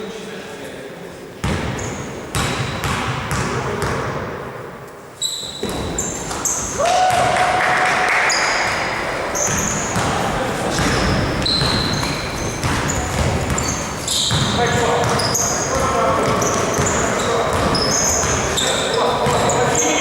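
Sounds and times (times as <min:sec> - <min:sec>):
sneaker squeaks: 0:01.4 - 0:04.0, 0:05.2 - 0:07.2, 0:08.1 - 0:20.0
basketball bouncing on court: 0:01.4 - 0:04.4, 0:05.5 - 0:07.5, 0:08.3 - 0:20.0
players shouting: 0:06.6 - 0:20.0.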